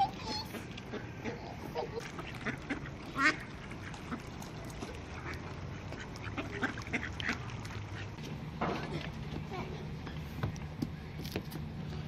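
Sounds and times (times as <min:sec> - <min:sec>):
ducks quacking: 0:00.0 - 0:08.3.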